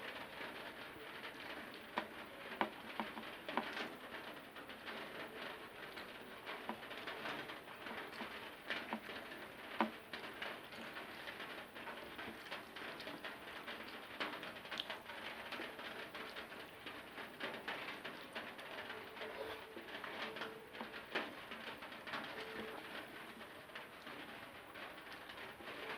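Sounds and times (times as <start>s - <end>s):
chewing with wet smacks: 7.0s - 9.9s, 10.6s - 17.0s.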